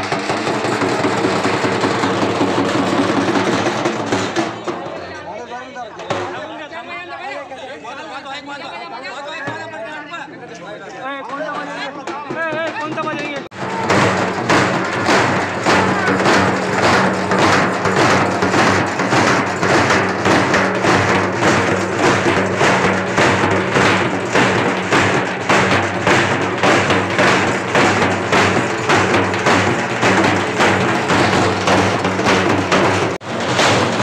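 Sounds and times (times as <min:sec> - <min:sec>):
frame drums beaten with sticks: 0:00.0 - 0:05.2, 0:06.0 - 0:06.6, 0:11.3 - 0:34.0.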